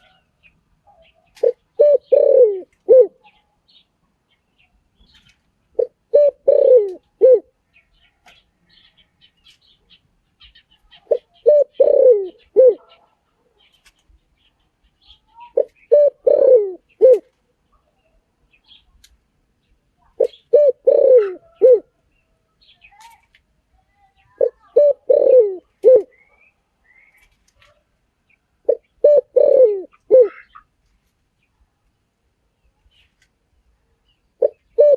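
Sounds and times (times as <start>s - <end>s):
small birds chirping: 0.0s - 34.9s
dove cooing: 0.9s - 3.4s, 5.8s - 7.6s, 10.9s - 13.2s, 15.5s - 17.3s, 20.2s - 22.0s, 24.4s - 26.2s, 28.6s - 30.6s, 34.4s - 34.9s.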